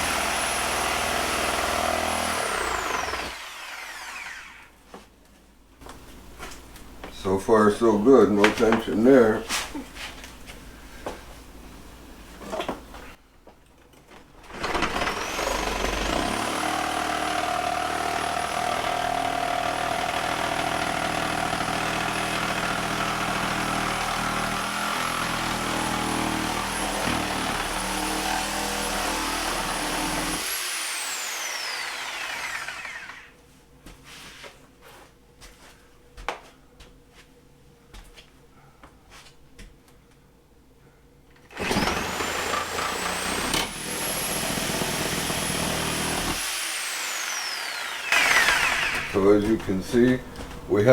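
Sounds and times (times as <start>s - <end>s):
reciprocating saw cutting wood: 0.0s - 4.7s, 14.7s - 33.3s, 41.5s - 50.1s.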